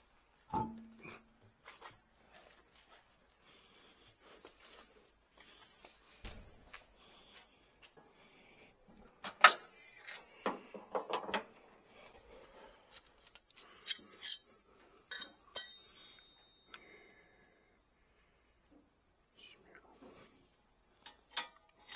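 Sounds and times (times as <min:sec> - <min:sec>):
metal parts clattering: 0:13.2 - 0:14.5
ringing metallic clinks: 0:15.1 - 0:16.8.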